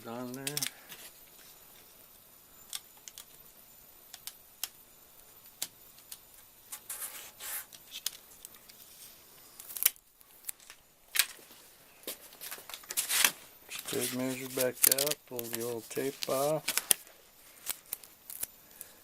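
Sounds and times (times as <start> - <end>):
hands rustling small items: 6.0 - 19.0.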